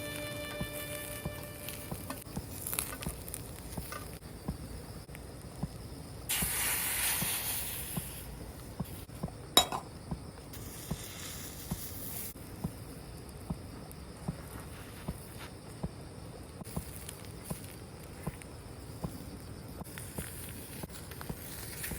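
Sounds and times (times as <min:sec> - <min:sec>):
wood fire crackles: 0:00.0 - 0:09.1, 0:10.5 - 0:21.9
loud hiss: 0:06.2 - 0:08.5, 0:10.5 - 0:12.4
food sizzling in a pan: 0:06.3 - 0:08.2, 0:10.6 - 0:12.4.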